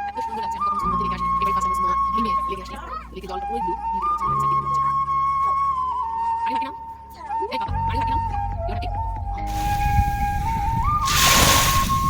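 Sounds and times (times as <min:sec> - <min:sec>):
flute-like melody: 0:00.0 - 0:12.0
water washing onto shore: 0:09.5 - 0:12.0.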